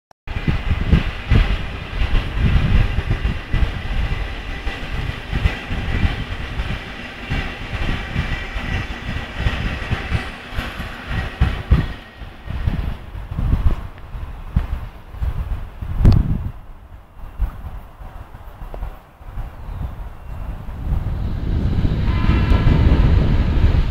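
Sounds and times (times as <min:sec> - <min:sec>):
train high whine: 0:00.3 - 0:23.9
train wheels clattering over rails: 0:00.3 - 0:23.9
wind buffeting microphone: 0:00.3 - 0:23.9.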